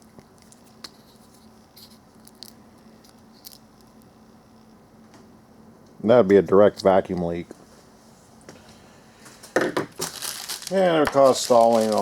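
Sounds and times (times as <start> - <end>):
rubber hoses crackling when squeezed: 10.0 - 12.0.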